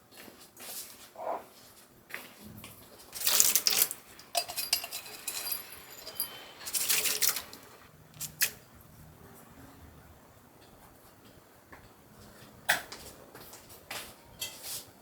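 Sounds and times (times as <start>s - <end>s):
dishes and cutlery clattering: 3.1s - 7.9s.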